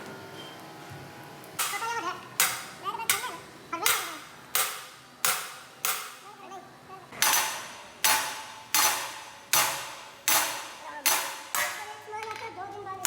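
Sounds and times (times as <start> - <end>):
hammer striking metal: 1.6 - 6.2, 7.2 - 12.0.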